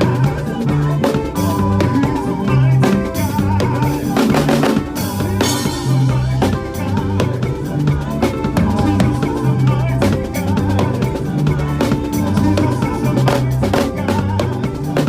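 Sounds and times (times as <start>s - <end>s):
bass guitar: 0.0s - 15.0s
drum kit playing upbeat groove: 0.0s - 15.0s
keyboard: 0.0s - 15.0s.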